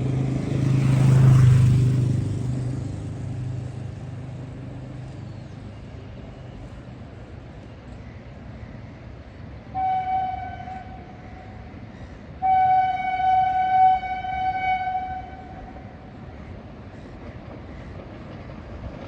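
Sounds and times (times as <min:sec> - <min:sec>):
low rumble of passing train: 0:00.0 - 0:19.0
locomotive air horn blasts: 0:09.8 - 0:11.5, 0:12.4 - 0:15.8.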